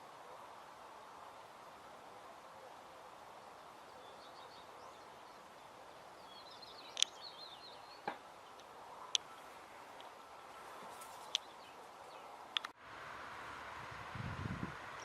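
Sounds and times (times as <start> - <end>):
small birds twittering: 2.6 - 12.8
sharp clicks: 6.9 - 7.2, 12.5 - 12.8.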